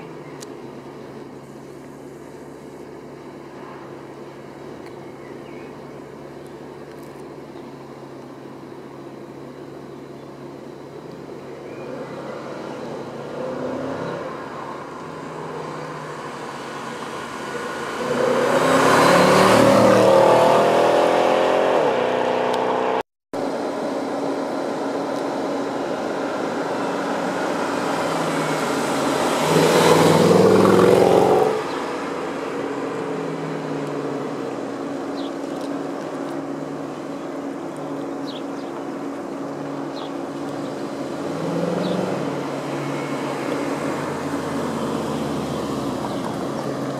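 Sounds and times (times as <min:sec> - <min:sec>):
car engine accelerating hard: 0:11.7 - 0:46.9.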